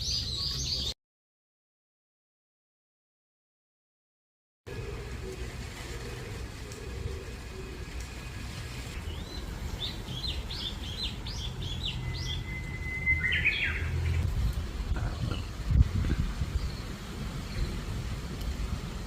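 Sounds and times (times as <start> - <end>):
songbird chirping and whistling: 0.0 - 0.9, 9.0 - 14.3
steady low rumble: 4.7 - 19.0.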